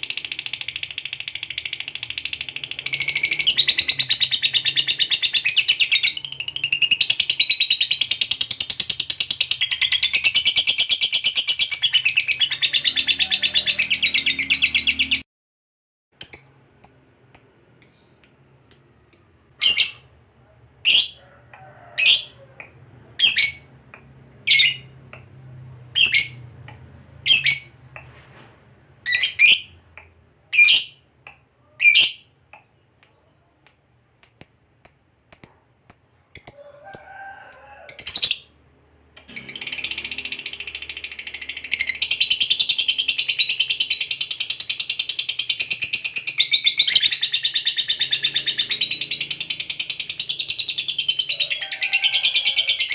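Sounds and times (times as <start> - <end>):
sharp high bird chirps: 0.0 - 15.2, 16.2 - 20.2, 29.0 - 29.8, 33.0 - 36.6.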